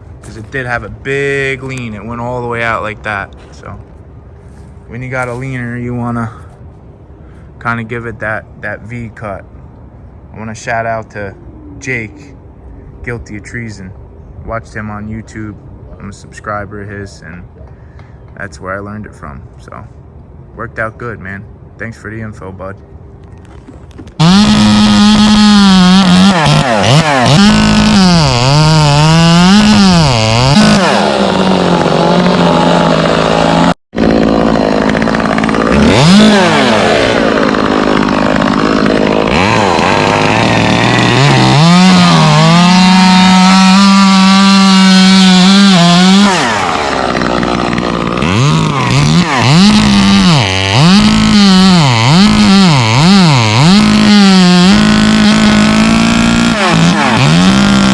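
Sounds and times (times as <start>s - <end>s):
chainsaw engine revving: 24.2s - 57.9s.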